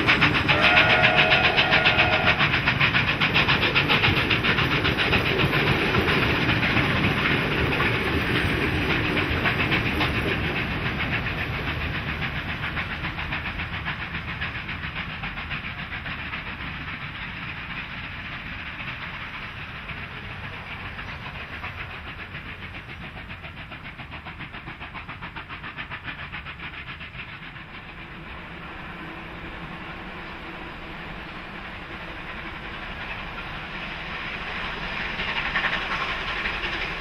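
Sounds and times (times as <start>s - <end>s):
train carriages rolling past: 0.0s - 37.0s
train hiss: 0.0s - 37.0s.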